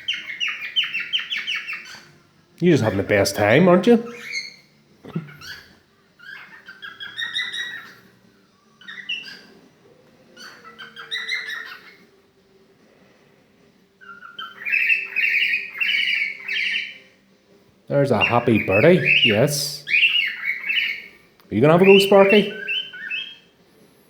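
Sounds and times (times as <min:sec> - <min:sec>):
cockatiel chirping: 0:00.0 - 0:02.2, 0:04.0 - 0:08.1, 0:08.8 - 0:09.6, 0:10.4 - 0:12.0, 0:14.0 - 0:17.0, 0:18.2 - 0:23.5.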